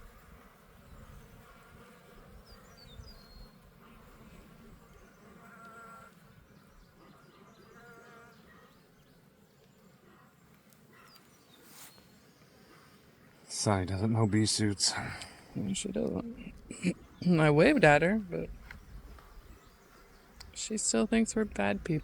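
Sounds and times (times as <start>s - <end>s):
bees buzzing: 10.6s - 22.0s.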